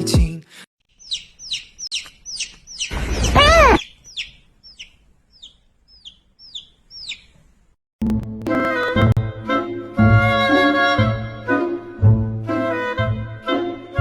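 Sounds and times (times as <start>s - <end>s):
music: 0.0s - 0.5s, 8.0s - 14.0s
bird chirping: 0.9s - 7.8s
bird call rising and falling: 1.0s - 7.4s.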